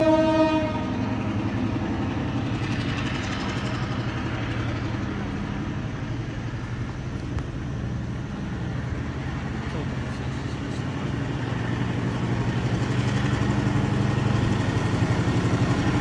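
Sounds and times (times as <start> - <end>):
train horn: 0.0 - 1.2
locomotive engine drone: 0.0 - 16.0
rail rumble: 0.0 - 16.0.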